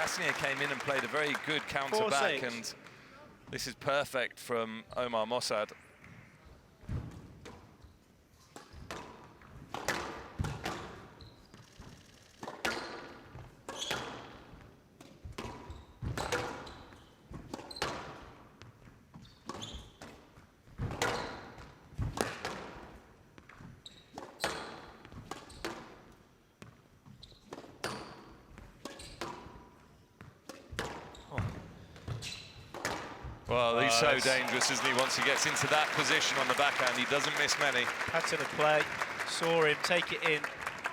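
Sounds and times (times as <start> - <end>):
squash ball hitting rackets and walls: 8.6 - 11.1, 12.4 - 18.4, 20.8 - 23.5, 24.1 - 26.1, 27.5 - 33.4.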